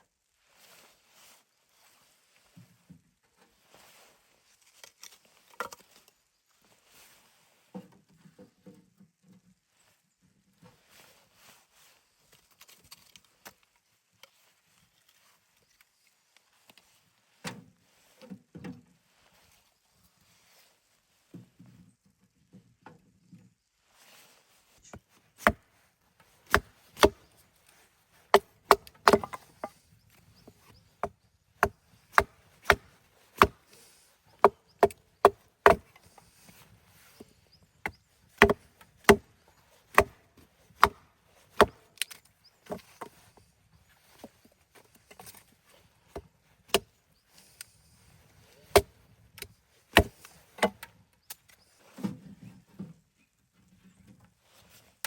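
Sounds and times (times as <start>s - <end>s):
wood being chopped: 25.4s - 25.6s, 26.4s - 27.4s, 28.2s - 29.8s, 30.4s - 33.7s, 34.4s - 36.7s, 37.8s - 39.3s, 39.9s - 43.2s, 48.7s - 50.9s.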